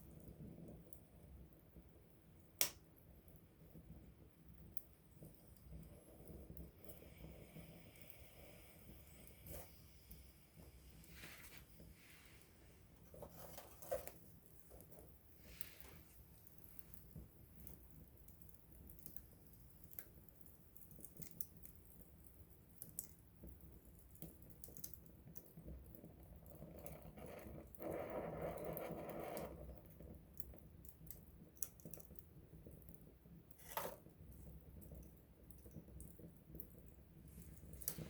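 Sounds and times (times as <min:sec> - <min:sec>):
campfire crackling: 0:02.4 - 0:38.0
fire hissing: 0:06.6 - 0:13.0.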